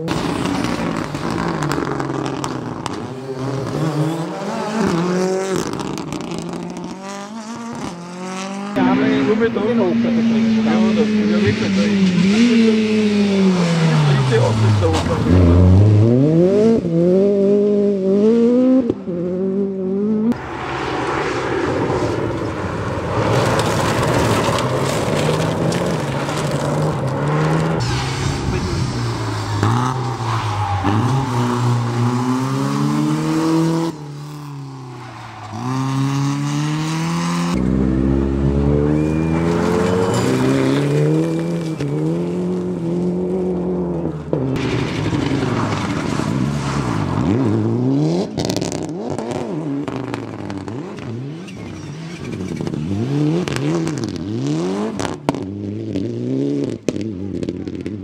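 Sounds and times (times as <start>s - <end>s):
rally car engines revving: 0.0s - 58.0s
gravel spraying: 20.5s - 30.9s.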